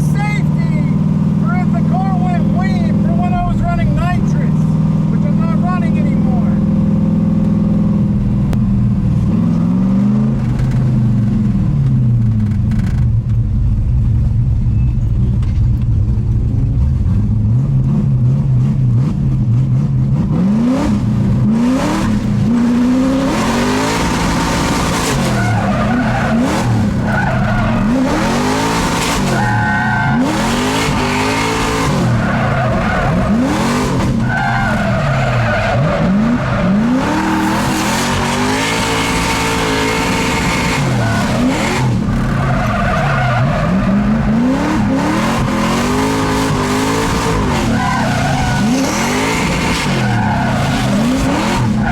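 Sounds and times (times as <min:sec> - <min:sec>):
car engine revving: 0:00.0 - 0:51.9
tyres squealing: 0:24.4 - 0:51.9.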